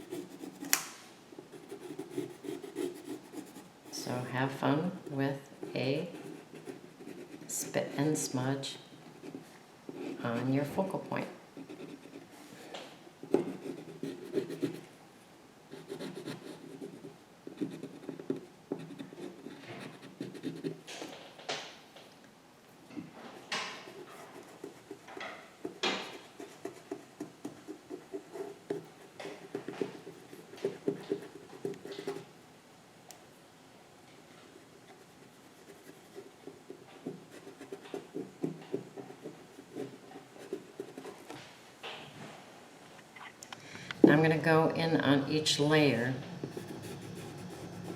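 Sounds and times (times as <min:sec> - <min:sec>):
pencil scratching on paper: 0:00.0 - 0:00.8, 0:01.4 - 0:04.1, 0:05.6 - 0:08.3, 0:09.2 - 0:10.8, 0:11.6 - 0:12.5, 0:13.3 - 0:14.9, 0:15.7 - 0:20.8, 0:23.7 - 0:32.3, 0:34.6 - 0:41.3, 0:46.4 - 0:47.9.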